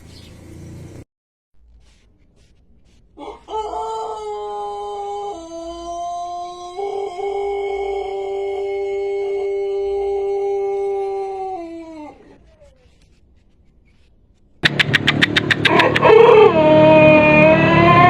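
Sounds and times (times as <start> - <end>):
rooster crowing: 3.2 - 12.4, 15.4 - 18.0.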